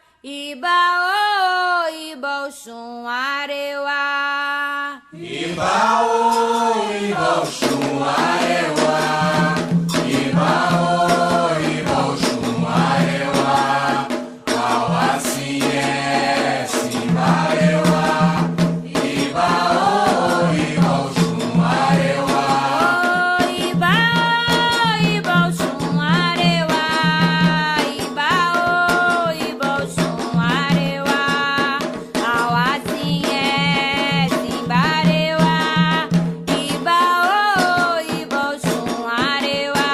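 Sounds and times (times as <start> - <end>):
group singing chants: 5.1 - 27.6, 28.6 - 31.2
drum strikes: 5.2 - 39.9
rattle shaking: 7.2 - 39.9.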